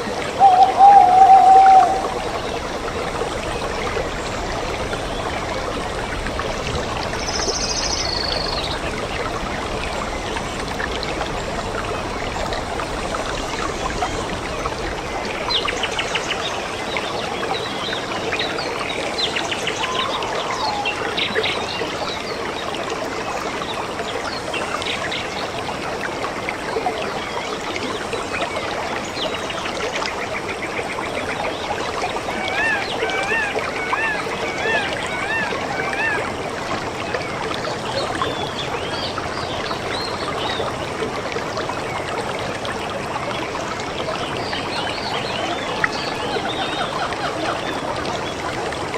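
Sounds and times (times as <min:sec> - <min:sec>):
stream flowing: 0:00.0 - 0:48.9
birds chirping: 0:00.4 - 0:02.8, 0:19.3 - 0:21.8.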